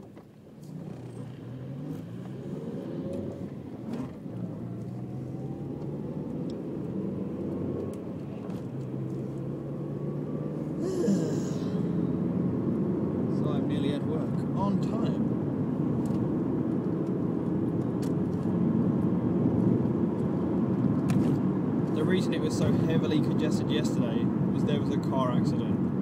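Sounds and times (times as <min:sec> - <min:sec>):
road rumble: 0:00.0 - 0:26.0
car engine accelerating: 0:00.5 - 0:26.0.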